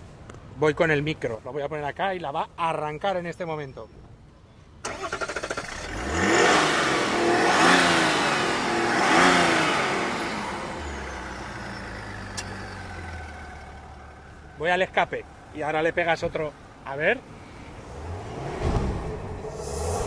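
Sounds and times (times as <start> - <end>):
engine starter cranking: 4.8 - 6.8, 9.2 - 14.0
diesel engine revving and idling: 4.9 - 20.0.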